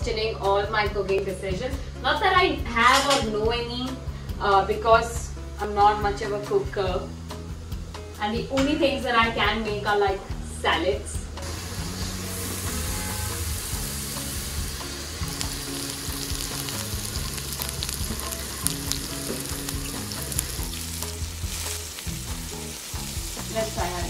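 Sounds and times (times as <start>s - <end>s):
quiet background music: 0.0s - 24.0s
mushrooms sizzling in a pan: 11.4s - 24.0s.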